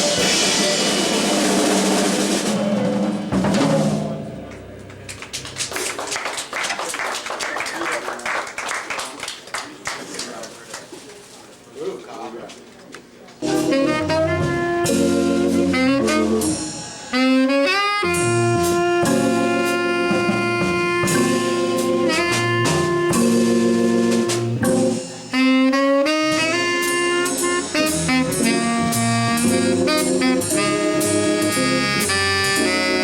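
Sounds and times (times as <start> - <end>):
jazz trio playing: 0.0 - 6.0, 13.4 - 33.0.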